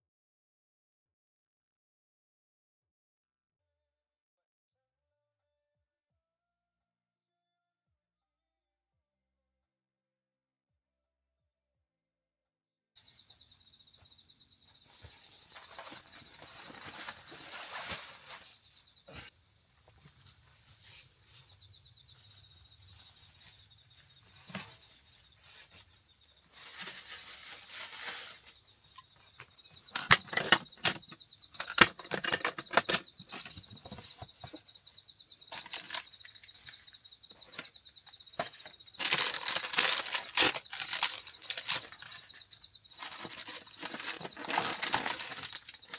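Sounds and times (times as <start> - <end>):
insects chirring: 13.0 - 45.9
rustling: 13.0 - 45.9
handling clicks and knocks: 29.4 - 34.7.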